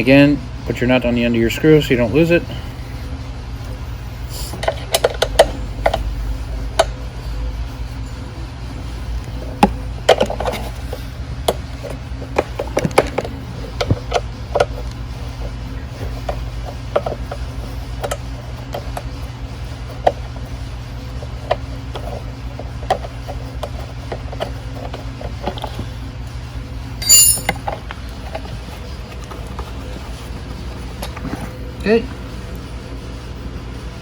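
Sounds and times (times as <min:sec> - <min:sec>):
steady low hum: 0:00.0 - 0:34.0
metal bolts and tools clicking: 0:27.0 - 0:27.8.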